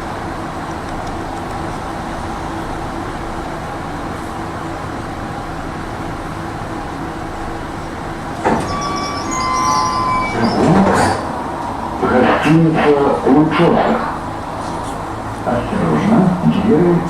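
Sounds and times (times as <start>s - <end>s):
tram wheels rumbling on rails: 0.0s - 17.0s
high metallic squeal: 8.4s - 12.0s.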